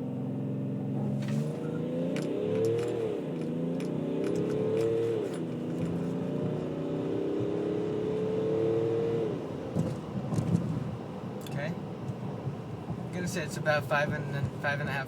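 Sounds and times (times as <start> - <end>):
diesel engine accelerating hard: 0.0 - 11.1.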